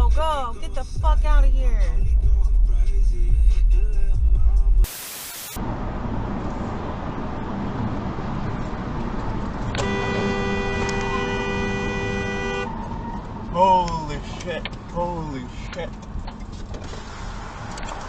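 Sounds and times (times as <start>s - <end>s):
car road noise: 0.0s - 18.0s
short burst of hiss: 4.9s - 5.6s
car horn held blast: 9.8s - 12.7s.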